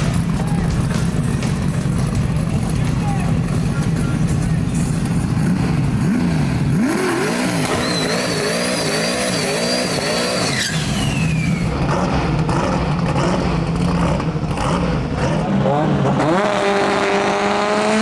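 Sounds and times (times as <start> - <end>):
low engine drone: 0.0 - 15.9
race car engine accelerating: 0.0 - 18.0
high turbo whistle: 7.6 - 11.8.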